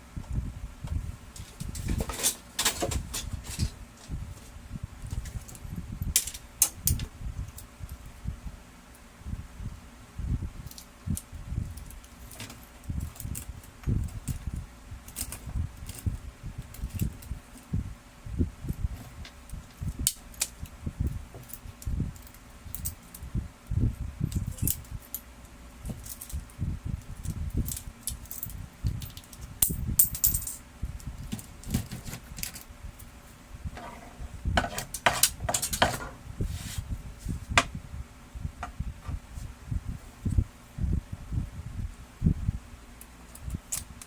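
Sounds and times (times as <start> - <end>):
clatter of small hard parts: 1.4 - 3.8, 34.6 - 36.2
dull knocks and handling bumps: 33.7 - 36.8.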